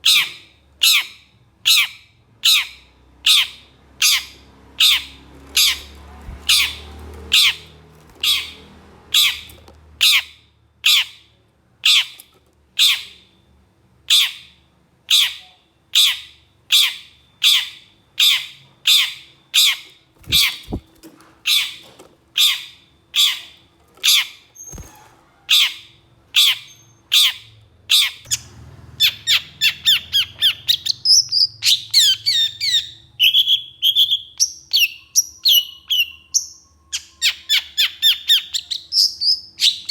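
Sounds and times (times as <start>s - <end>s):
bird harsh rasping calls: 0.0s - 12.2s, 14.1s - 28.4s, 29.0s - 36.2s
bird chattering notes: 20.2s - 20.9s.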